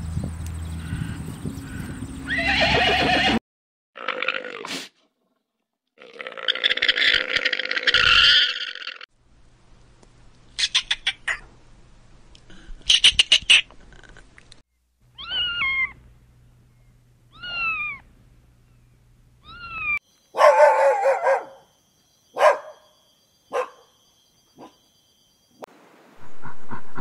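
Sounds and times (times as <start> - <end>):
cat meowing: 15.2 - 16.0, 17.3 - 18.0, 19.4 - 20.0
dog barking: 20.3 - 21.7, 22.4 - 22.9, 23.5 - 23.9, 24.6 - 24.8.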